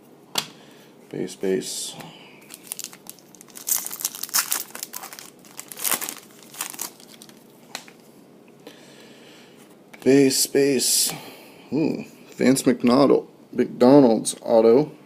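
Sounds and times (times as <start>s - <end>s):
card wrappers crinkling: 2.4s - 8.0s.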